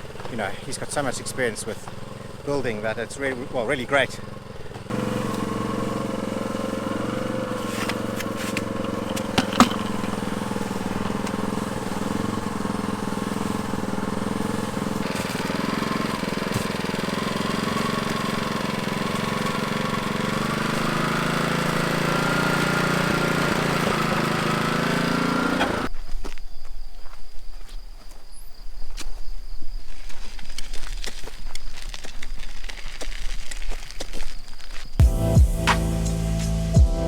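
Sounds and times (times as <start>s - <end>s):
cement mixer running: 4.9s - 25.9s.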